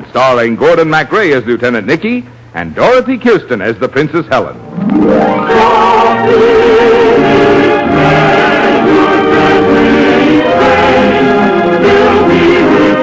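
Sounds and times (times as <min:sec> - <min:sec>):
orchestra playing: 0:04.6 - 0:10.4
choir singing long held notes: 0:04.8 - 0:13.0.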